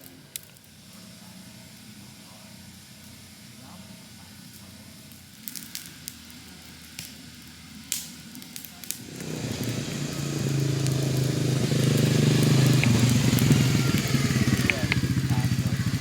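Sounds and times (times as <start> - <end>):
sharp clicks: 7.9 - 16.0
atv engine running: 8.9 - 16.0.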